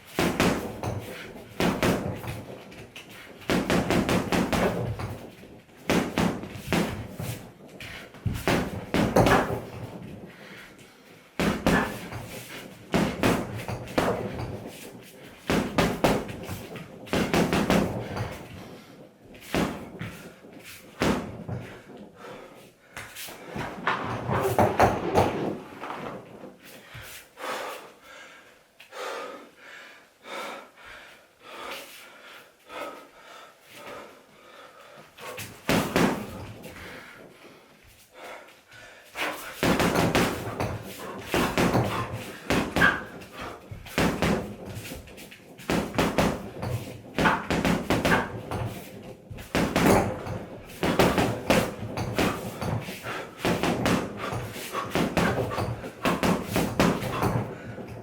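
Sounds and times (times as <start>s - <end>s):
punches thudding on heavy bag: 0.1s - 10.2s, 11.4s - 22.1s, 23.0s - 26.3s, 35.4s - 37.2s, 39.2s - 58.0s.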